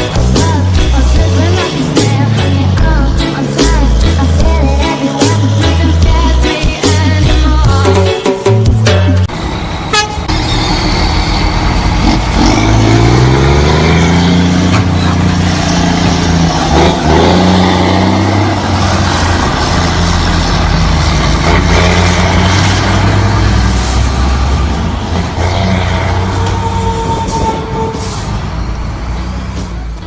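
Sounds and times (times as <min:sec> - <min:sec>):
truck diesel engine pulling away: 0:09.3 - 0:30.0.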